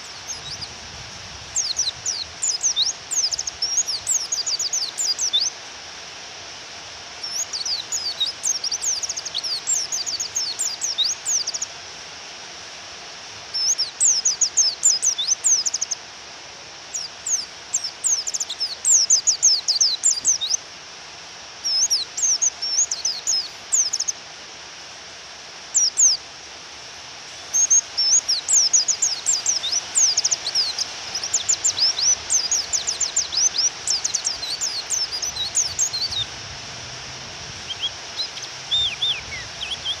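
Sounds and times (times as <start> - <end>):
bird chirping twitter: 0.0 - 0.7, 1.6 - 5.5, 7.2 - 11.7, 13.6 - 16.0, 17.0 - 20.6, 21.6 - 24.1, 27.5 - 36.3, 37.7 - 40.0
rain hissing: 0.0 - 40.0.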